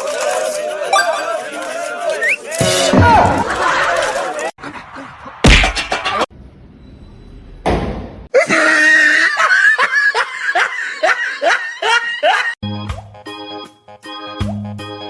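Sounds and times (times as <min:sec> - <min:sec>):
person laughing hard: 0:08.4 - 0:12.6.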